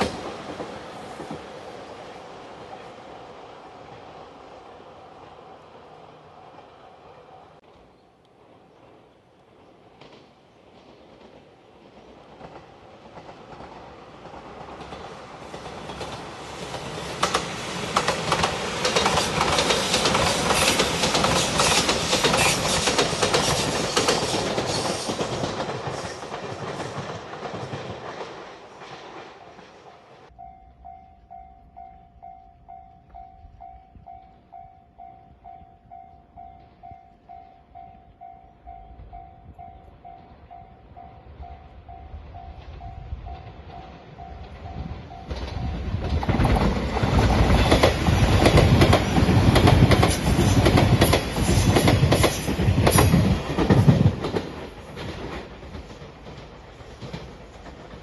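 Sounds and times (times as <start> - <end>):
train wheels clacking over rail joints: 10.0 - 30.1, 42.6 - 58.0.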